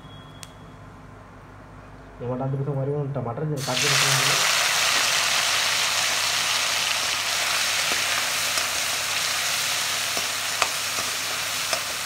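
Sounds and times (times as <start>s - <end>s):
tomatoes sizzling in hot oil: 3.6s - 12.0s.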